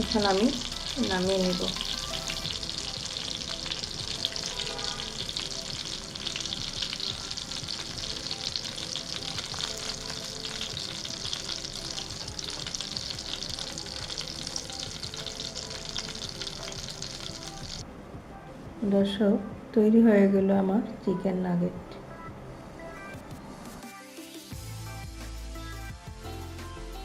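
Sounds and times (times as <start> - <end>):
chicken nuggets sizzling in hot oil: 0.0 - 17.8.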